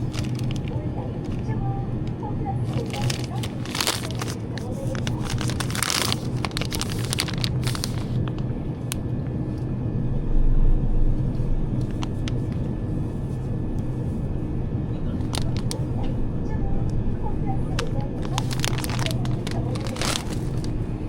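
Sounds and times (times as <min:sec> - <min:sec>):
rustling: 0:00.0 - 0:01.5, 0:02.7 - 0:08.4, 0:17.7 - 0:20.9
low rumble with hum: 0:00.0 - 0:21.0.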